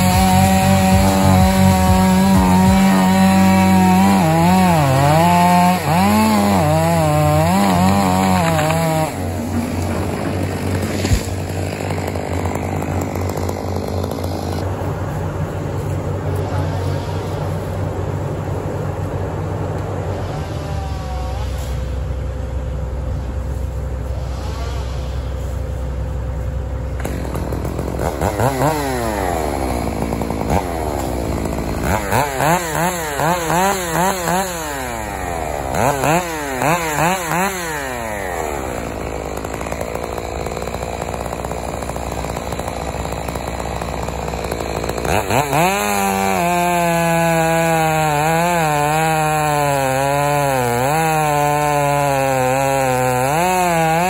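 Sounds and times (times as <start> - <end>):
chainsaw revving: 0.0 - 14.7, 26.8 - 54.0.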